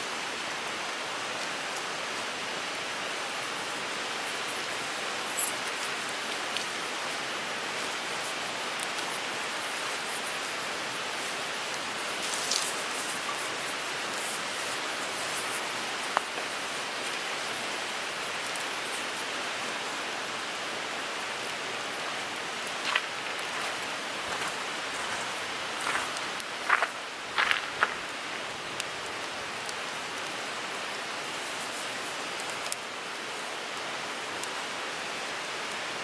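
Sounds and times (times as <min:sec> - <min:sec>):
wood fire hissing: 0:00.0 - 0:36.0
fire crackles and pops: 0:04.5 - 0:17.6, 0:22.2 - 0:32.9.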